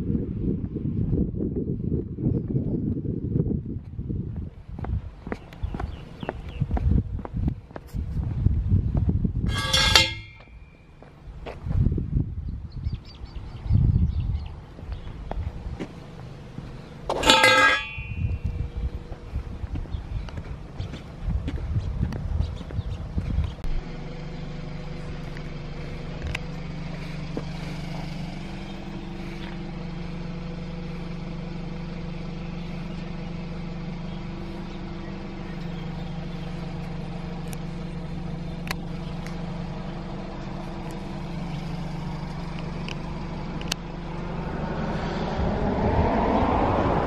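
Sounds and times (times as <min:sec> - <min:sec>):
car engine idling: 0:13.0 - 0:45.7.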